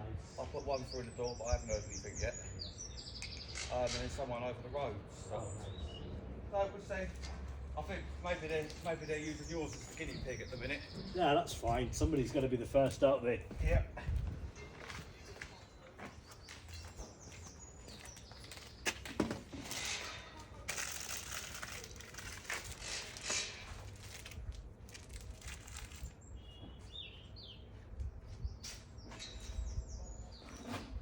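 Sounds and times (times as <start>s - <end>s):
bird chirping: 0.3s - 4.2s, 8.5s - 12.2s, 14.6s - 19.0s, 25.4s - 27.8s
rustling and handling noise: 14.5s - 26.9s.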